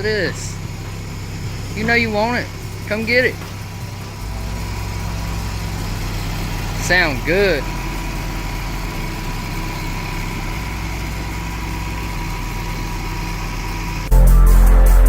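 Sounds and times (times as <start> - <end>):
car engine idling: 0.0 - 15.0
loud electronic music: 14.1 - 15.0.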